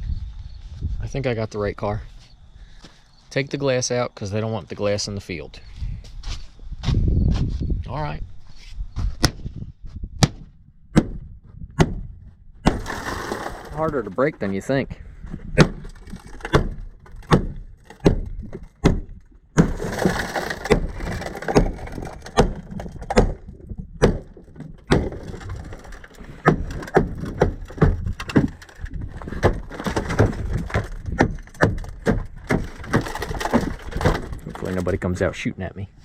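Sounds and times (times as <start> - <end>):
glass crunching: 12.7 - 14.8, 15.6 - 18.8, 19.6 - 35.1.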